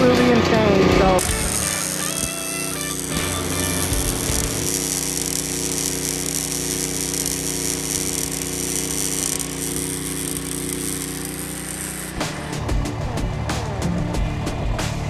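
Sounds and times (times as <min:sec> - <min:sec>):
machine hum: 0:00.0 - 0:14.8.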